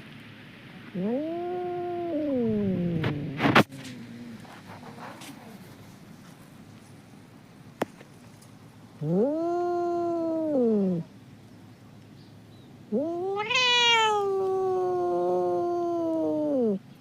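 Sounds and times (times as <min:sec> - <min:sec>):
cat meowing: 0:00.9 - 0:03.4, 0:09.0 - 0:11.1, 0:12.9 - 0:16.8.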